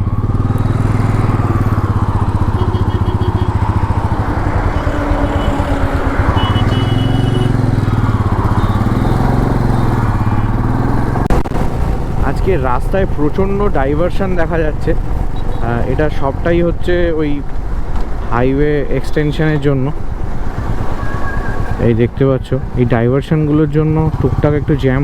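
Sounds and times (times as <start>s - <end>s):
motorcycle engine running: 0.0s - 21.8s, 23.4s - 25.0s
wind and road noise: 0.0s - 25.0s.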